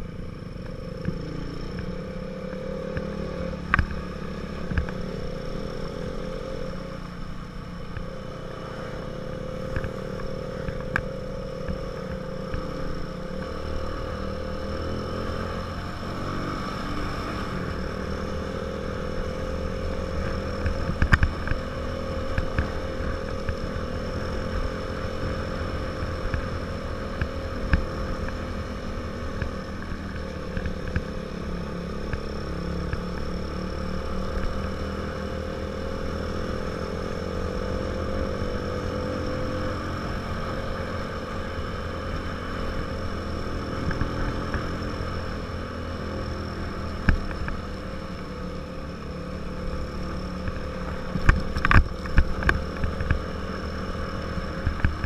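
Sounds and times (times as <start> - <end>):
small motorcycle engine running: 0.0 - 55.0.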